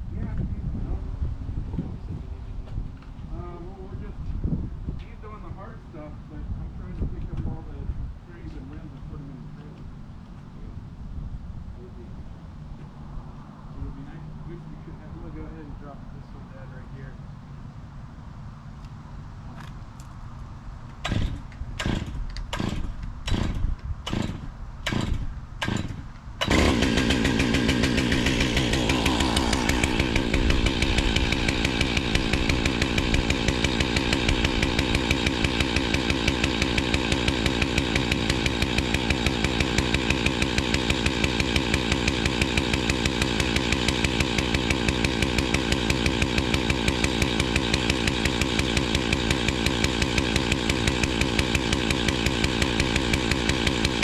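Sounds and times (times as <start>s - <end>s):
chainsaw engine running: 20.9s - 54.0s
chainsaw pull-start strokes: 20.9s - 54.0s.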